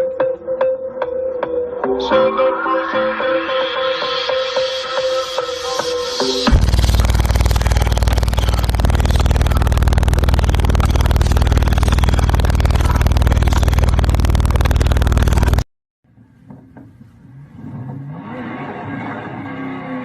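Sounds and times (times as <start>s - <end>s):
car engine at high revs: 6.5s - 15.6s, 17.5s - 20.0s.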